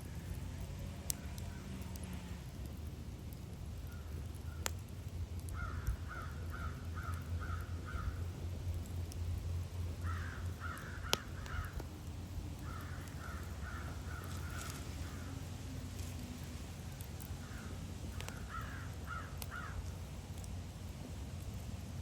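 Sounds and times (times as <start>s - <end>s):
steady low rumble: 0.0s - 22.0s
wood fire crackling pops: 0.0s - 22.0s
crows cawing: 5.5s - 8.3s, 10.0s - 11.9s, 12.6s - 15.4s, 17.2s - 19.9s.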